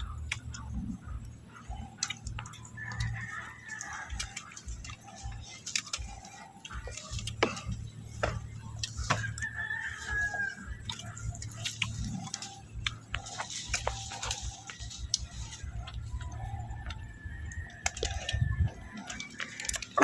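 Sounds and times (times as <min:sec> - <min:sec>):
rooster crowing: 0:02.4 - 0:05.6, 0:08.8 - 0:12.5, 0:13.2 - 0:19.7.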